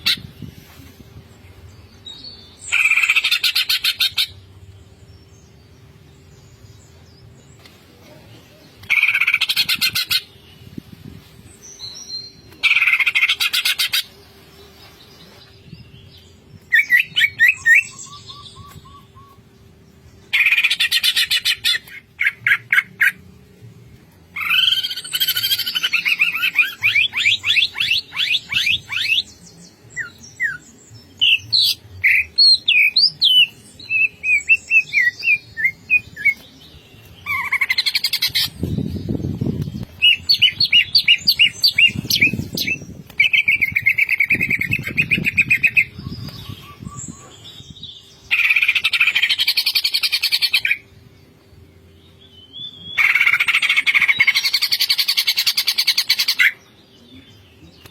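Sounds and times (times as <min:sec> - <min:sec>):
bird chirps: 0:14.9 - 0:19.6, 0:24.4 - 0:57.9.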